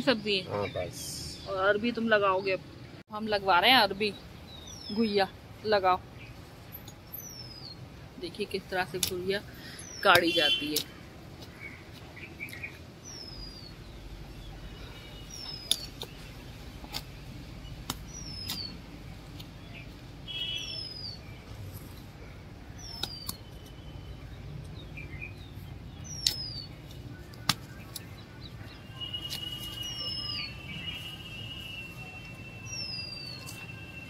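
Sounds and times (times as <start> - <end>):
digging blade striking stony soil: 17.8 - 18.8, 22.8 - 23.4, 26.1 - 26.6
bird whistled call: 28.9 - 34.0.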